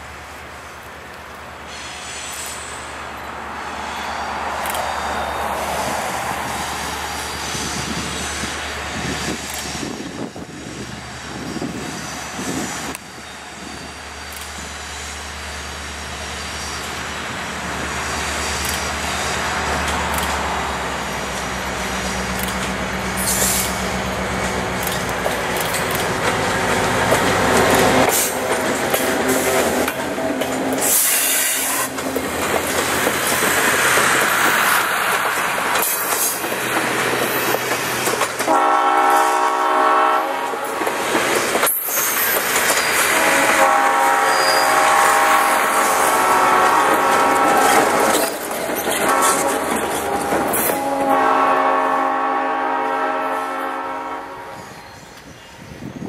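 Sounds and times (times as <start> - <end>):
diesel locomotive engine: 0.0 - 56.0
train wheels clicking over rail joints: 4.4 - 15.3, 16.6 - 39.5, 40.4 - 51.1
multi-tone train horn: 27.8 - 32.4, 38.4 - 40.9, 43.0 - 48.4, 49.0 - 54.8.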